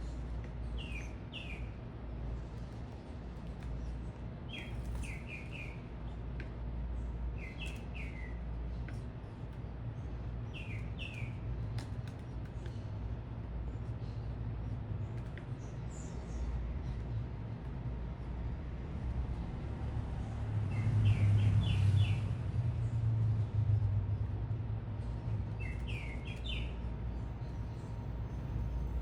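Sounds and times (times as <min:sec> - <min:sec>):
city traffic rumble: 0:00.0 - 0:29.0
small birds chirping: 0:00.5 - 0:01.8, 0:02.4 - 0:06.2, 0:07.4 - 0:13.0, 0:25.0 - 0:29.0.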